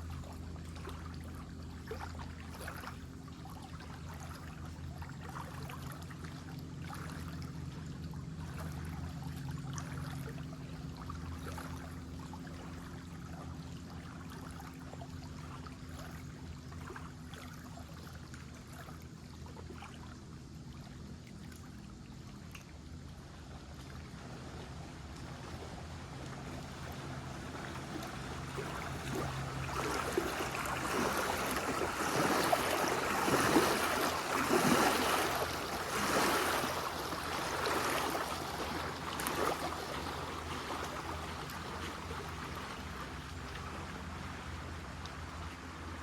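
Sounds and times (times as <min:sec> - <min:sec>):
low engine hum: 0:00.0 - 0:46.0
water trickling and splashing: 0:00.0 - 0:46.0.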